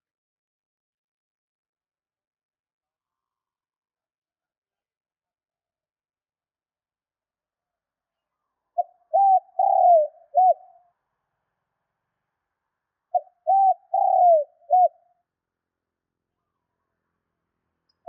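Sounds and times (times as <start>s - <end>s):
dove cooing: 8.8s - 10.8s, 13.1s - 15.0s.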